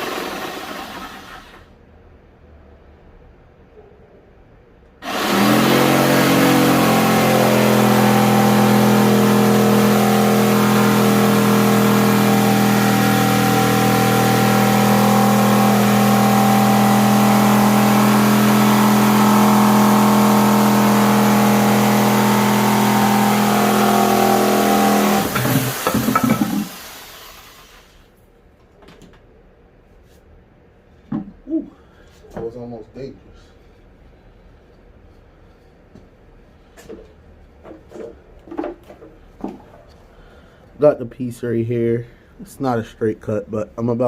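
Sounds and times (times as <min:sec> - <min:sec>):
electric saw cutting wood: 0:00.0 - 0:01.6, 0:05.0 - 0:27.5.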